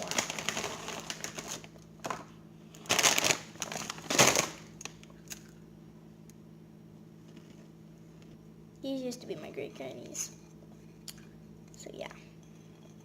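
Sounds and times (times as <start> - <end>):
pretzel bag rustling: 0.0 - 1.7, 2.8 - 4.6.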